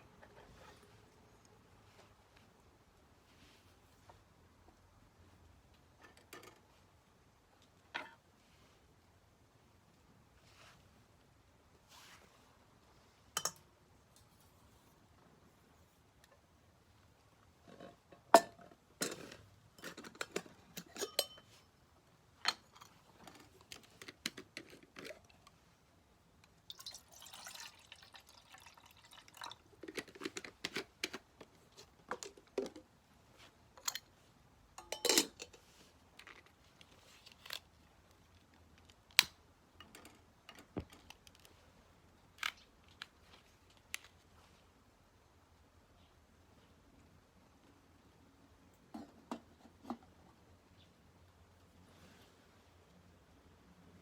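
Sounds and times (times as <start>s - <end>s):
tea utensils clinking: 20.9s - 21.5s, 26.7s - 29.6s
liquid pouring: 26.6s - 29.8s.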